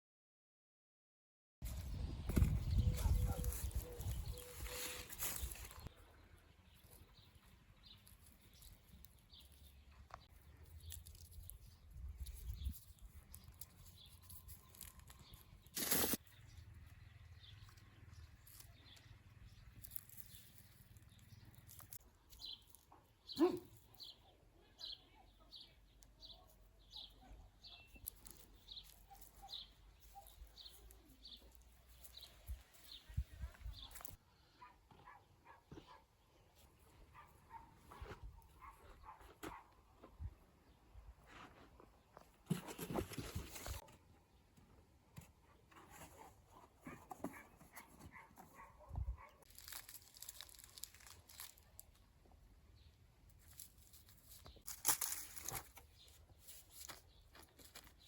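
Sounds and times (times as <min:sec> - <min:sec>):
small bird chirping: 0:02.0 - 0:34.2.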